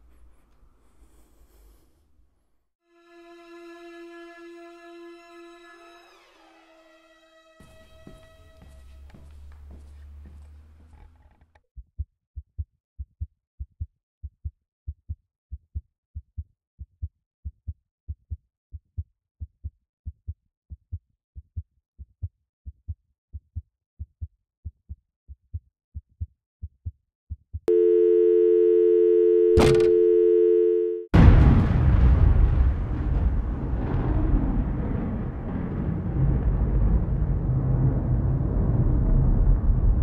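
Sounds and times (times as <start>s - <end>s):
two-pitch electronic tone: 27.7s - 31.1s.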